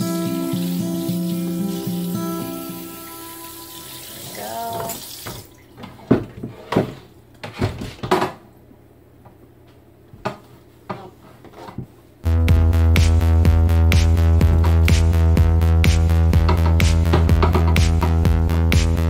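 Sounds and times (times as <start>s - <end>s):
water running in sink: 0.0s - 6.4s.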